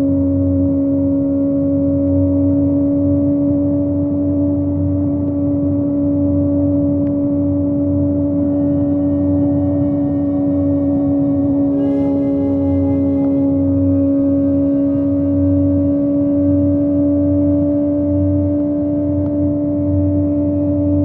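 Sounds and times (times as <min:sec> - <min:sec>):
motorcycle engine high revving: 0:01.7 - 0:18.4.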